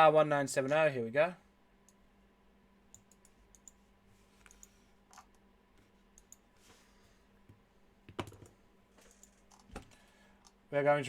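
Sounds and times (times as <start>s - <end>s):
computer mouse and keyboard clicks: 4.4s - 5.4s, 8.1s - 10.6s.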